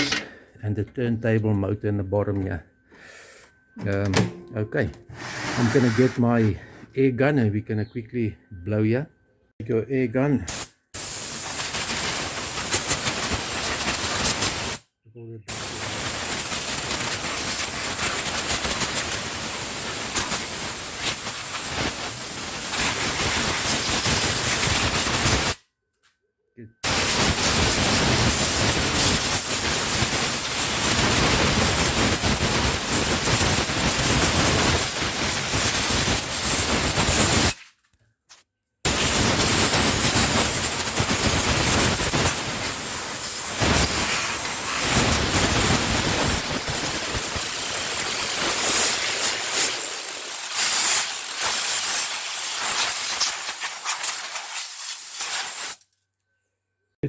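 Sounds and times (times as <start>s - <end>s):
compressed air blow gun hissing: 15.5s - 25.6s, 26.8s - 37.5s, 38.9s - 55.8s.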